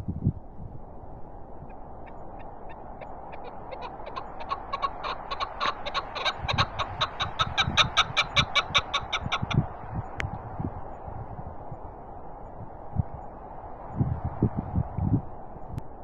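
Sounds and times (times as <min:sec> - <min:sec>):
cold wind rushing: 0:00.0 - 0:16.0
wind buffeting microphone: 0:00.0 - 0:16.0
partridge clucking calls: 0:02.0 - 0:09.7.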